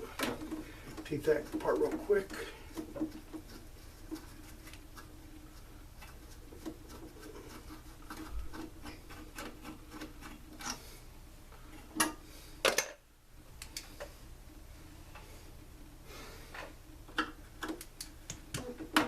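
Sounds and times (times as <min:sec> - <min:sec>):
hand tools clicking and rubbing: 0:00.0 - 0:10.9
faint steady hum: 0:00.0 - 0:19.0.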